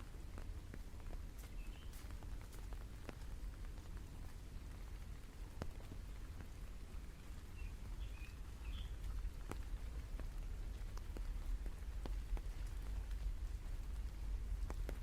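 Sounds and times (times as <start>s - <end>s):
rain falling: 0.0s - 15.0s
steady low rumble: 8.3s - 15.0s.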